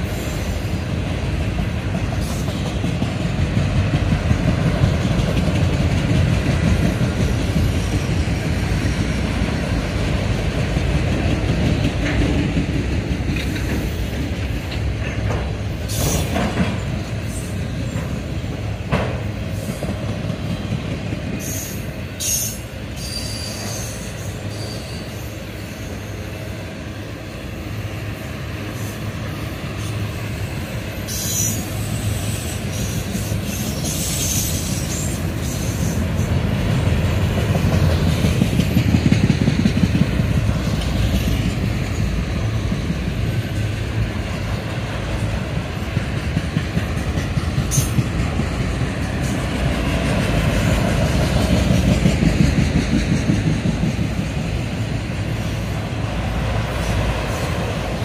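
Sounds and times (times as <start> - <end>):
steel wheels rumbling on rail: 0.0 - 58.0
high-pitched wheel squeals: 21.5 - 26.2.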